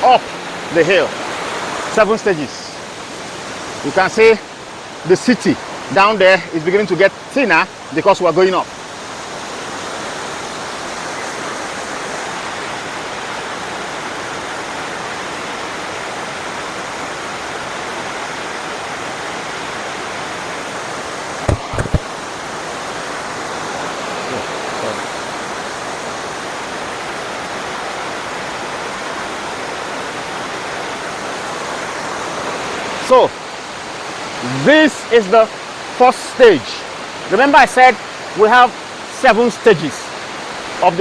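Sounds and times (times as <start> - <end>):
waterfall rushing: 0.0 - 41.0
sharp knocks: 21.4 - 22.2.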